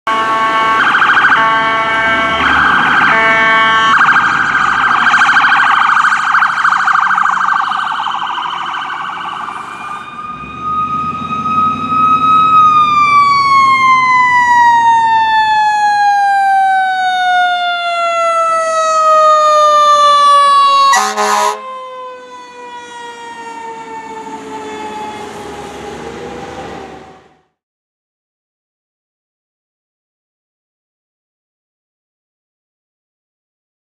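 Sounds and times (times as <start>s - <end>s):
air horn blast: 0.1s - 4.0s, 20.9s - 21.7s
ambulance electronic siren warbling: 0.1s - 27.5s
fire engine mechanical siren wail: 0.1s - 27.6s.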